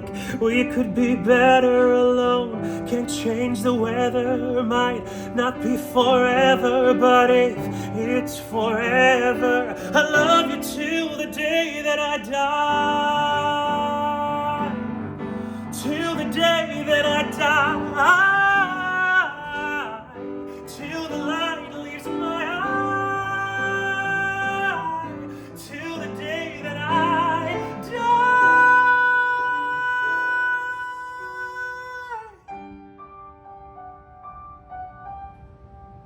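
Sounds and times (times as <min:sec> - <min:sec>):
sustained piano chords: 0:00.0 - 0:36.0
person singing wordless vocal runs: 0:15.6 - 0:32.5.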